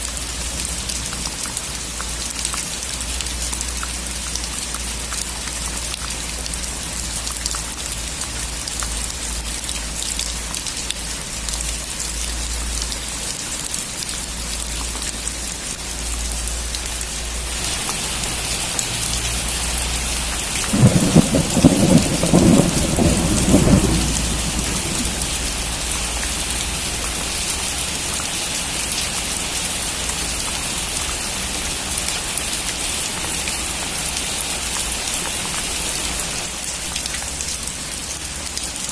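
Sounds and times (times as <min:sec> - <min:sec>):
steady rain: 0:00.0 - 0:38.9
thunder rumbling: 0:20.2 - 0:26.4.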